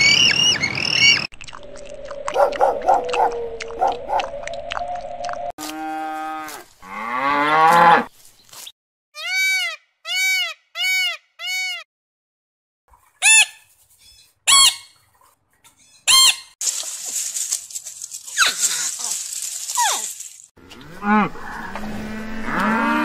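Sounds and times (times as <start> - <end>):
low mooing call: 2.0 - 8.1, 20.6 - 23.0
macaw squawk: 13.2 - 14.9.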